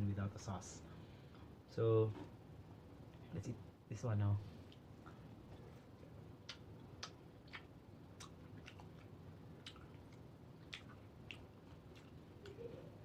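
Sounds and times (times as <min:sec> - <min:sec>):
person chewing food: 0:06.4 - 0:12.6
wet mouth clicks: 0:06.4 - 0:12.6.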